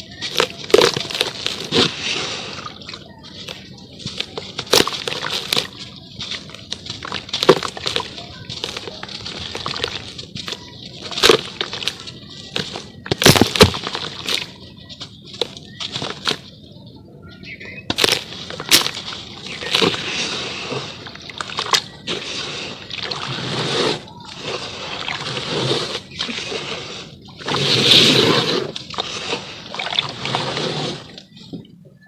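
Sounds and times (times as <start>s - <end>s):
wet crunching and sloshing: 0.0s - 16.7s, 17.4s - 31.7s
charcoal pieces cracking: 4.1s - 14.5s, 17.9s - 23.6s.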